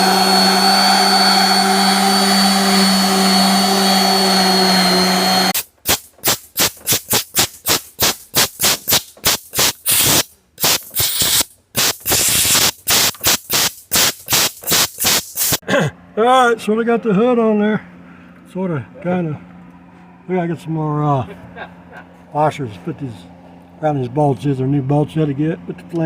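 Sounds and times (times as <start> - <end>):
power tool running: 0.0 - 7.6.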